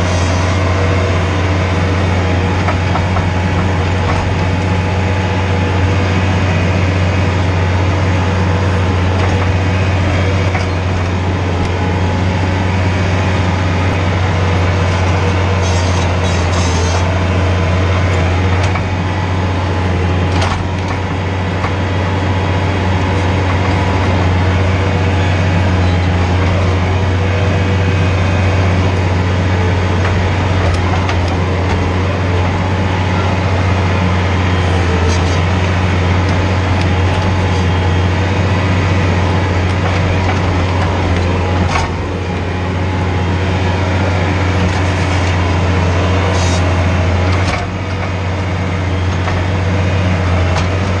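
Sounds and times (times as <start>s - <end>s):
engine droning under load: 0.0s - 51.0s.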